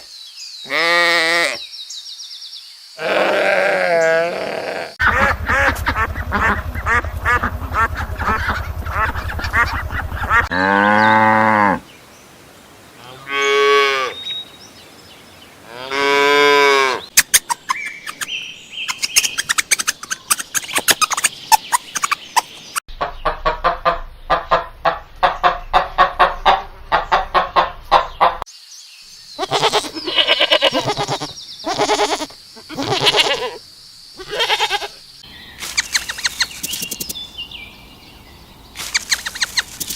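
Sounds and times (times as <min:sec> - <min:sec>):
rapid rhythmic animal calls: 0:05.0 - 0:10.5, 0:17.0 - 0:28.4, 0:34.2 - 0:39.9
honking bird calls: 0:05.0 - 0:11.8, 0:15.6 - 0:28.4, 0:34.2 - 0:39.9
cattle mooing: 0:07.8 - 0:11.8.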